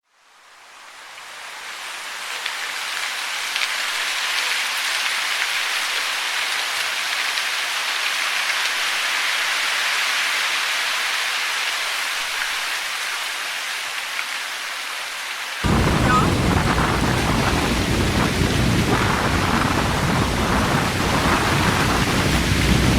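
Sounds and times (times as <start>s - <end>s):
falling water hiss: 0.2s - 22.9s
deep water rushing: 15.6s - 22.9s.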